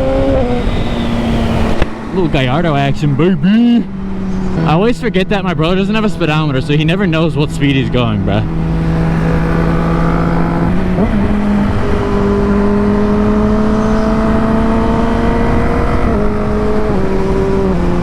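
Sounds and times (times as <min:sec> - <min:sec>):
wind rush on microphone: 0:00.0 - 0:03.2, 0:08.4 - 0:18.0
motorcycle engine accelerating: 0:00.0 - 0:18.0.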